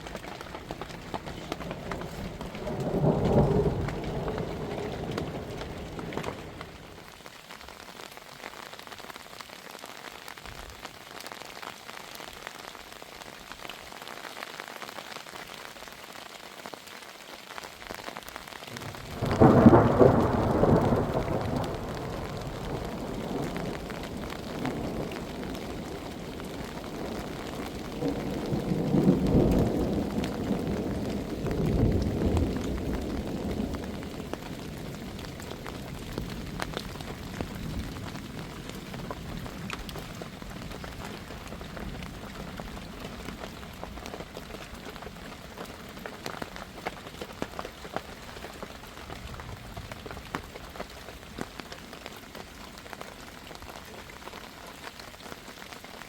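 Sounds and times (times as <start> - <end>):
thunder rolling: 0.0 - 7.1, 18.7 - 43.7
heavy rain: 0.0 - 56.0.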